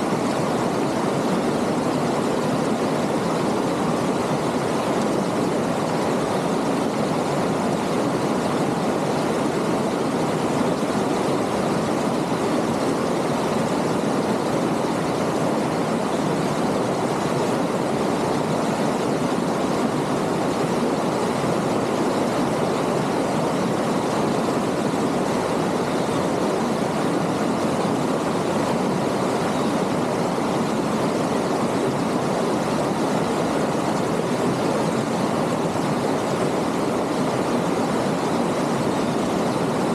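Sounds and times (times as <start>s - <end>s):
stream rushing over stones: 0.0s - 39.9s.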